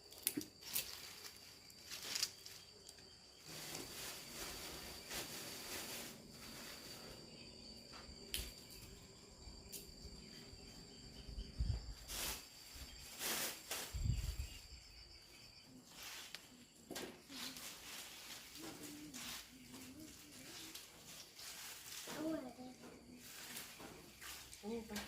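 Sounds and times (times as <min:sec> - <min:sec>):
insects trilling: 0:00.0 - 0:25.0
handling rustles and knocks: 0:00.2 - 0:02.7.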